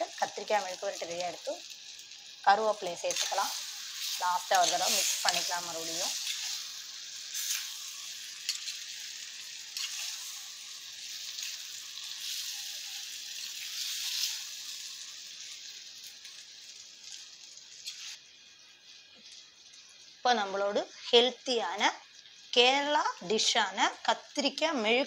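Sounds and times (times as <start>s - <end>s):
eggplant sizzling in oil: 0.0s - 25.0s.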